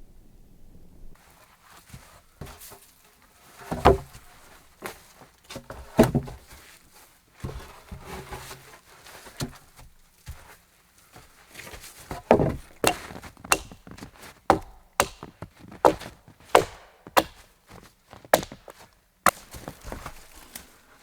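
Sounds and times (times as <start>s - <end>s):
wooden knocks and thuds: 12.2s - 18.8s.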